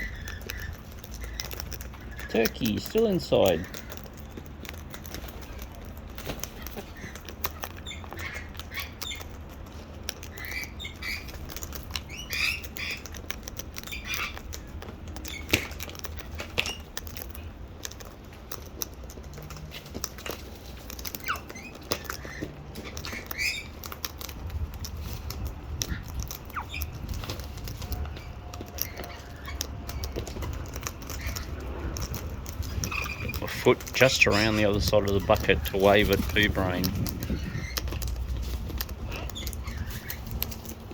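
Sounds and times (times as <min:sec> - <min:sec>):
parrots squawking and chirping: 0:00.0 - 0:40.9
sharp clicks and scuffling: 0:00.0 - 0:40.9.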